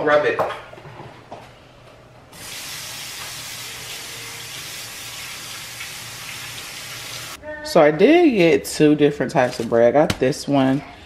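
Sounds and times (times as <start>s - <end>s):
water running from a tap: 2.4s - 7.4s.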